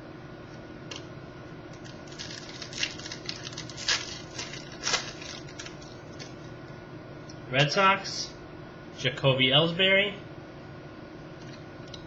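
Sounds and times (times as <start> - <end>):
cards clicking and rustling: 1.8 - 6.4.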